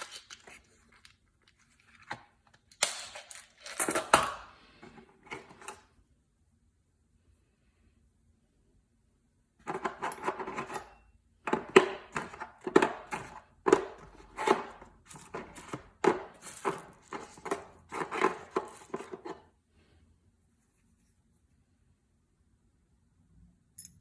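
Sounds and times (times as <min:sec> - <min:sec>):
tools knocking and clicking: 0:09.6 - 0:19.4, 0:23.8 - 0:24.0.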